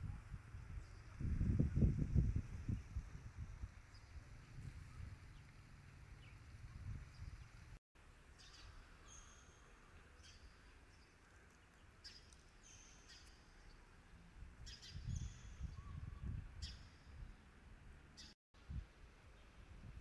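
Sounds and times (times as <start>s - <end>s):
small birds chirping: 3.8s - 7.8s, 8.4s - 17.5s.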